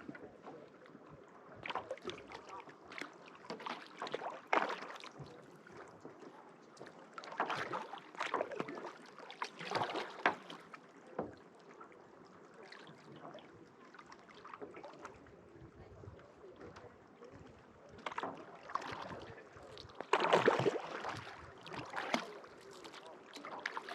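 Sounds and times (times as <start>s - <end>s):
paddle splashing in water: 0.0s - 15.7s, 16.6s - 23.9s.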